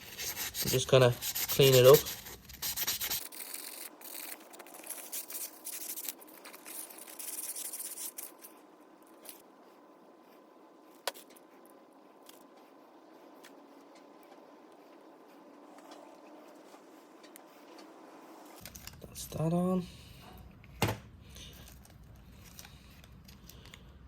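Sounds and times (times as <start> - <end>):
sandpaper rubbing on steel: 0.0 - 4.3.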